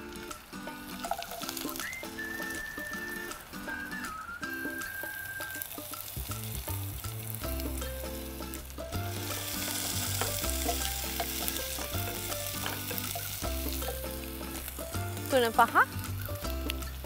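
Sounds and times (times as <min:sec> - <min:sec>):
onions sizzling in oil: 0:00.0 - 0:17.0
background music with bass line: 0:05.6 - 0:17.0.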